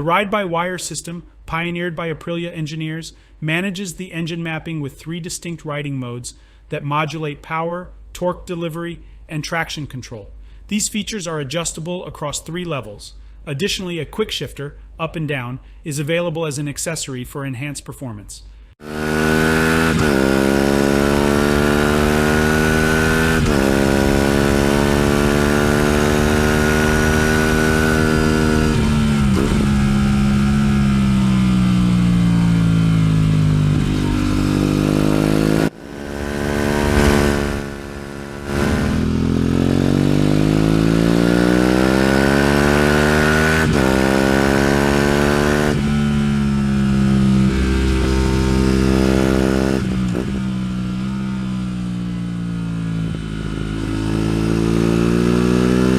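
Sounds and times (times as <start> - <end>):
motorcycle engine accelerating: 18.8 - 55.9.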